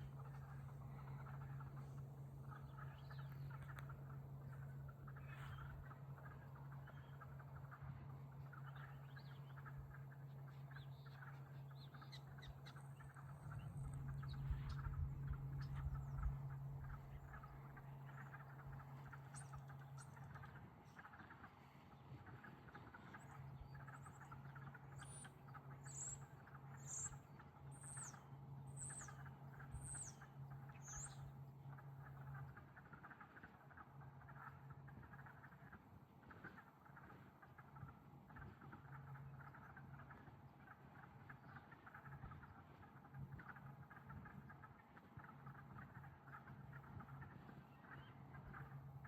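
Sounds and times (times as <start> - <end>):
constant low hum: 0.0 - 49.0
low rumble: 13.0 - 18.1.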